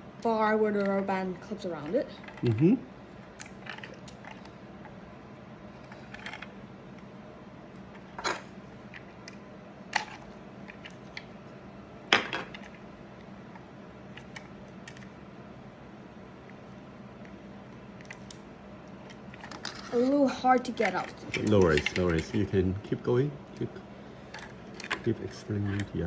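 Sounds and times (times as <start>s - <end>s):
faint low hum: 0.0s - 26.0s
plastic parts clicking and knocking: 20.8s - 22.5s, 24.3s - 26.0s.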